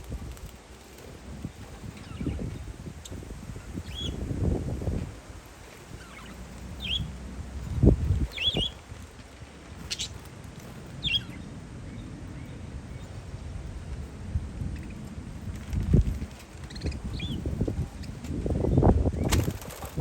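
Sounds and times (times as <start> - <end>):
wind buffeting microphone: 0.0 - 20.0
parakeets chirping: 0.1 - 4.3, 5.5 - 9.0, 9.6 - 13.3, 16.6 - 19.3.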